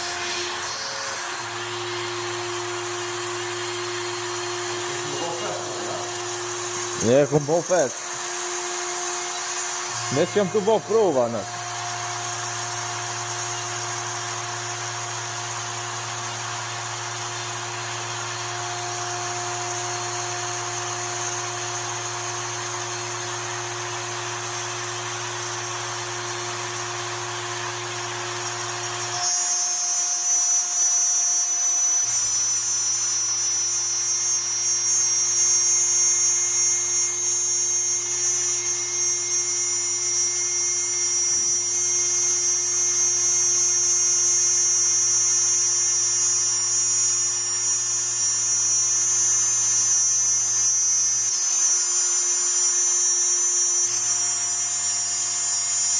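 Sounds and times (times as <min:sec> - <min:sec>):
machine motor whine: 0:00.0 - 0:55.9.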